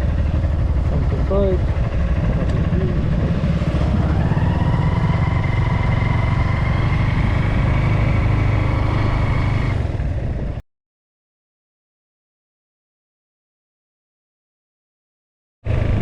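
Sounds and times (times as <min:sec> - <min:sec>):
motorbike engine whine: 0:00.0 - 0:10.6, 0:15.7 - 0:16.0.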